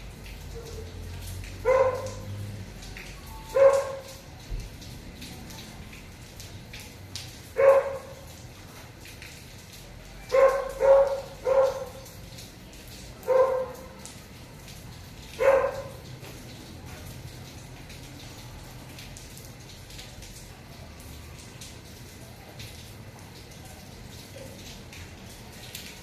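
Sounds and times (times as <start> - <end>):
faint drips: 0.0 - 26.0
light rain hissing: 0.0 - 26.0
dog barking: 0.5 - 1.0, 1.6 - 2.4, 3.5 - 4.2, 7.5 - 8.3, 10.2 - 12.1, 13.2 - 14.0, 15.3 - 16.1.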